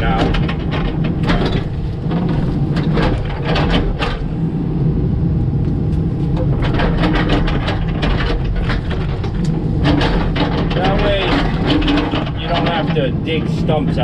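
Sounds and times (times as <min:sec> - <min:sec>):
excavator diesel engine under load: 0:00.0 - 0:14.0
bucket clunks: 0:06.5 - 0:13.1.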